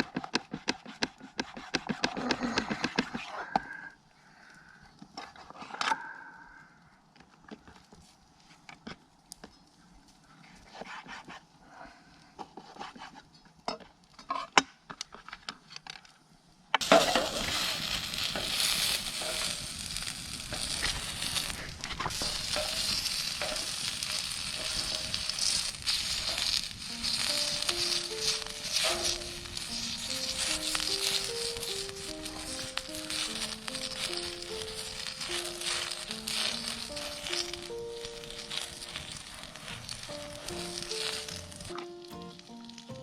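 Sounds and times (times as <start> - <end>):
food sizzling on a grill plate: 16.8 - 43.0
music: 24.6 - 43.0.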